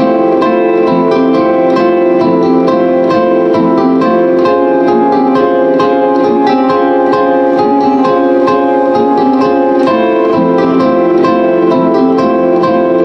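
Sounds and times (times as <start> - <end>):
plucked string instrument: 0.0 - 13.0.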